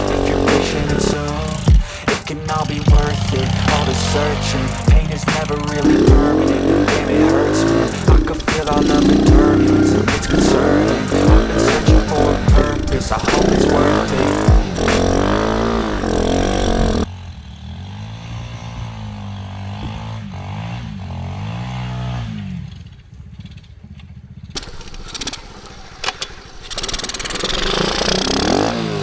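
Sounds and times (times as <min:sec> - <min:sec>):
music: 0:00.0 - 0:15.0
steady noise: 0:00.0 - 0:17.1
small engine revving: 0:00.0 - 0:29.0.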